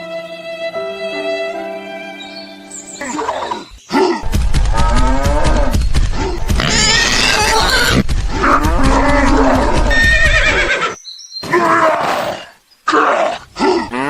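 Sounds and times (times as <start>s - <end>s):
low rumble: 4.2s - 9.9s.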